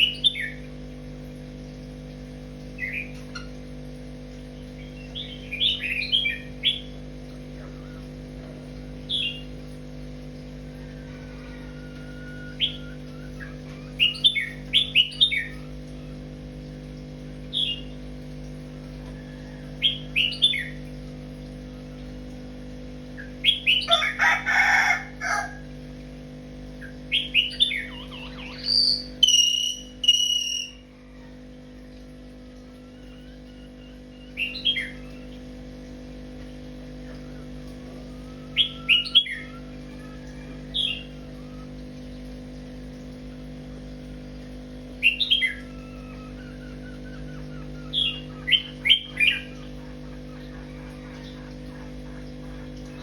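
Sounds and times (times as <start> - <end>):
birds chirping: 0.0 - 0.7, 2.8 - 3.5, 4.6 - 8.1, 23.1 - 25.5, 26.8 - 31.3, 32.4 - 35.4, 37.0 - 41.9, 44.9 - 53.0
long clear bird call: 23.2 - 25.6, 26.8 - 31.4, 37.1 - 41.8, 45.0 - 51.4
harsh bird call: 27.1 - 31.1.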